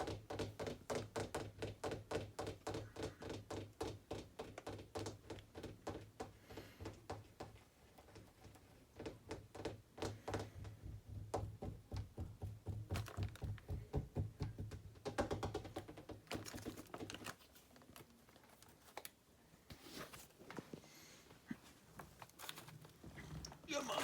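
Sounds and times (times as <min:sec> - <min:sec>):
rapid light taps and thunks: 0:00.0 - 0:17.3.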